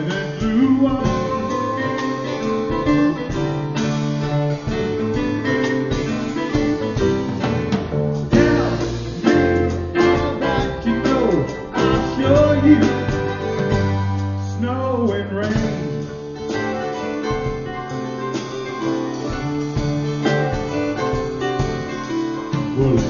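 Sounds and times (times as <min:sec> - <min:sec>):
person singing: 0:00.0 - 0:03.7, 0:08.3 - 0:16.2, 0:17.4 - 0:23.0
acoustic folk band music: 0:00.0 - 0:23.0
sliding gliding notes: 0:00.0 - 0:23.0.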